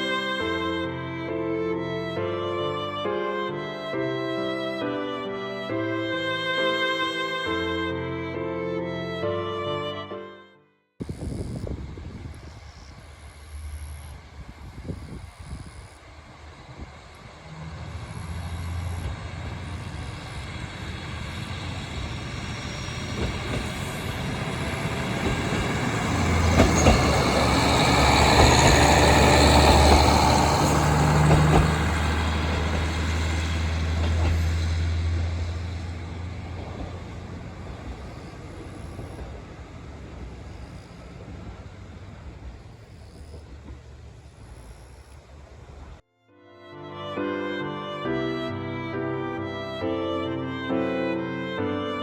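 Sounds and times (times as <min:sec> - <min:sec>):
diesel railcar engine droning: 0:00.0 - 0:10.2, 0:11.0 - 0:46.0
train wheels clicking: 0:12.3 - 0:46.0.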